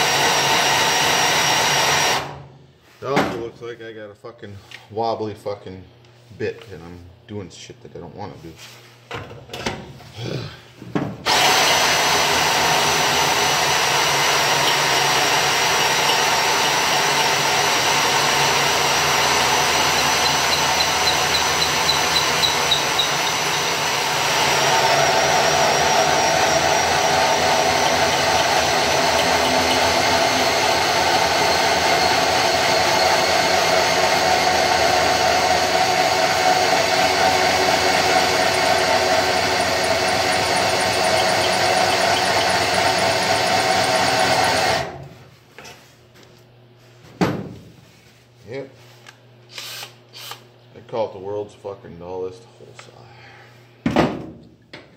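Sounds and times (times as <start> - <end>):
power drill cutting sheet metal: 0.0 - 2.4, 11.3 - 45.0, 49.5 - 50.5.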